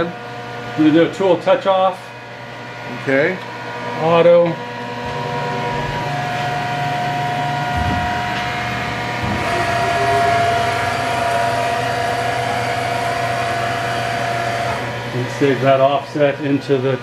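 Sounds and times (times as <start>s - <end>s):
milling machine drives whining: 2.4s - 17.0s.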